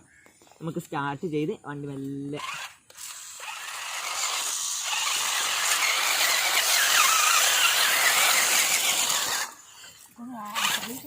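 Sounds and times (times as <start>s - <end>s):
toy car electric motor whining: 2.2s - 11.0s.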